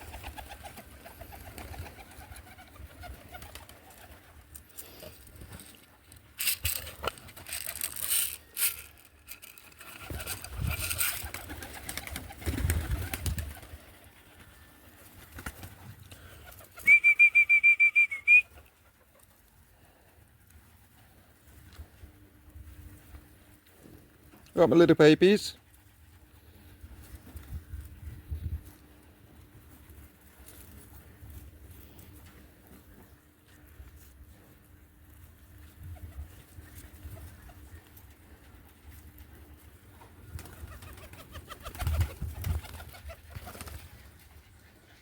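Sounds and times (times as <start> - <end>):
rustling: 0.0 - 15.6.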